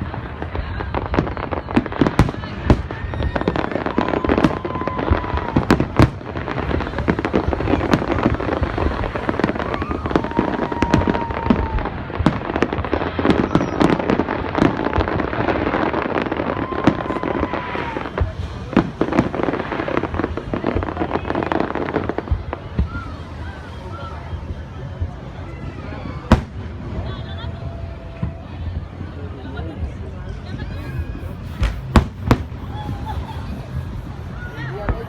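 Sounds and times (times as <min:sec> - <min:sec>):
fireworks bangs and crackles: 0:00.0 - 0:35.0
steady tone: 0:30.2 - 0:35.0.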